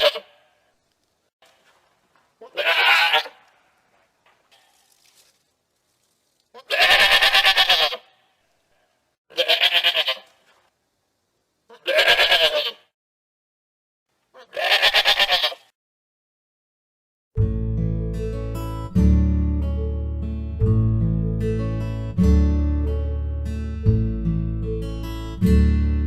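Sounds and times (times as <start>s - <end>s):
goat bleating: 0.0s - 0.5s, 2.4s - 3.7s, 6.5s - 8.3s, 9.3s - 10.4s, 11.7s - 12.9s, 14.3s - 15.7s.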